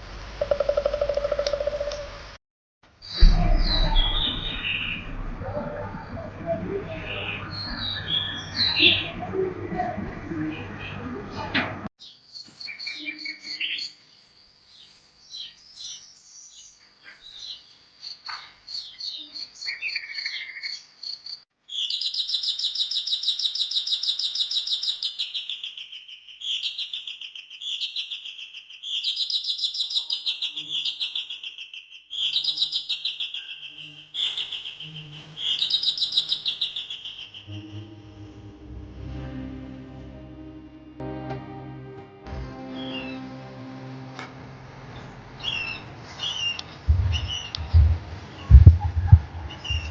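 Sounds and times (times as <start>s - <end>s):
bird song with falling trills: 0.4s - 2.2s, 45.4s - 47.6s
birds chirping and whistling: 3.0s - 9.2s, 32.2s - 37.7s, 45.4s - 47.8s, 48.4s - 49.9s.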